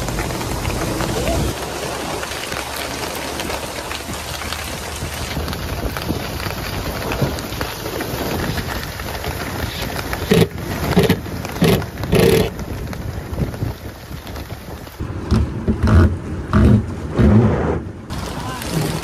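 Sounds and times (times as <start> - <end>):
rustles: 0.0 - 15.0
steady rain: 0.0 - 19.0.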